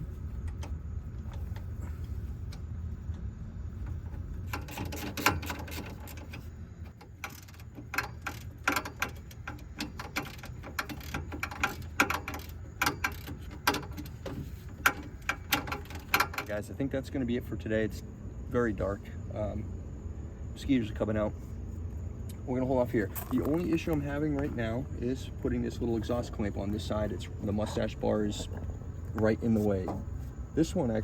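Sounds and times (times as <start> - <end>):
low steady hum: 0.0 - 31.0
metal tools clinking and scraping: 22.8 - 30.1.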